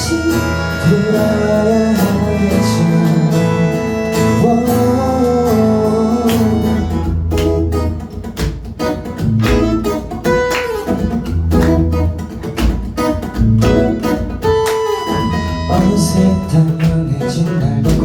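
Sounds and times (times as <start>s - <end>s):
acoustic guitar strumming: 0.0s - 18.0s
bass line: 11.2s - 12.2s.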